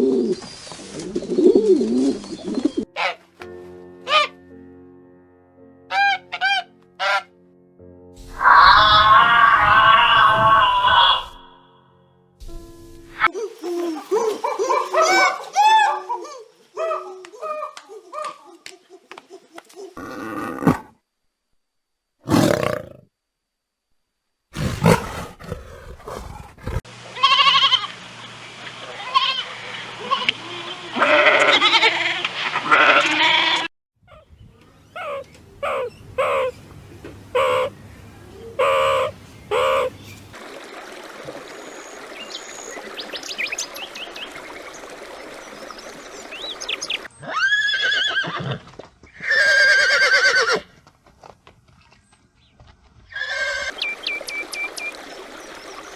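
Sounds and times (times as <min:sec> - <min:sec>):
farm animal calls: 0:01.5 - 0:03.2, 0:04.1 - 0:04.4, 0:05.9 - 0:07.3, 0:08.3 - 0:11.5, 0:13.7 - 0:20.1, 0:29.0 - 0:40.3.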